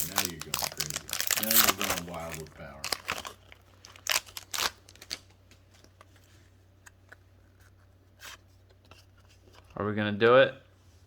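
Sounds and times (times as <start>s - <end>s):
wrappers and cards crinkling: 0.0s - 6.3s.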